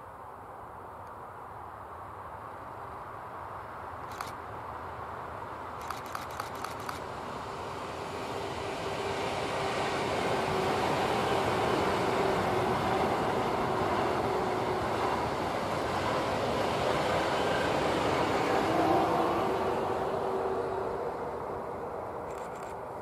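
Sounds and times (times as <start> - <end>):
train wheels rushing on rail: 5.8 - 22.8.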